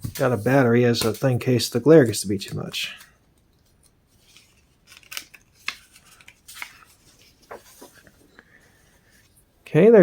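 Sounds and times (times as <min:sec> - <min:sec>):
catalog pages rustling: 0:04.1 - 0:09.5.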